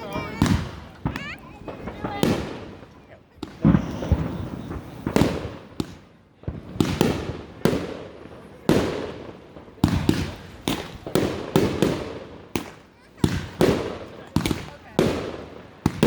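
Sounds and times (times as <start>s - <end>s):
fireworks bangs echoing: 0.0s - 16.0s.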